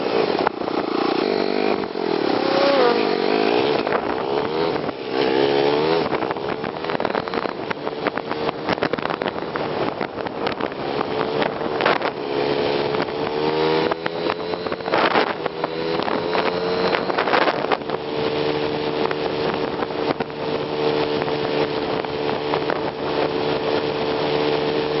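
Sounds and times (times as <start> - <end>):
sped-up motorcycle engine buzzing: 0.0 - 25.0
wind buffeting microphone: 0.0 - 25.0.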